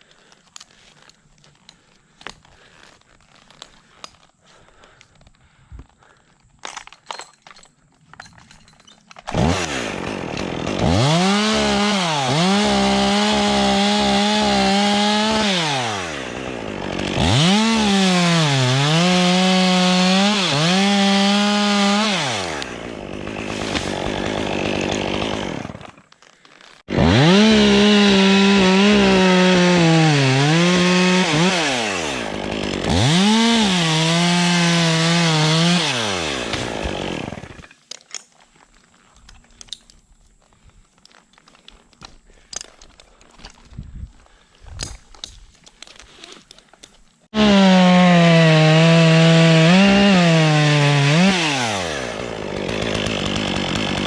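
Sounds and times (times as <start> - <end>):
chainsaw cutting wood: 9.2 - 38.3, 47.2 - 54.0.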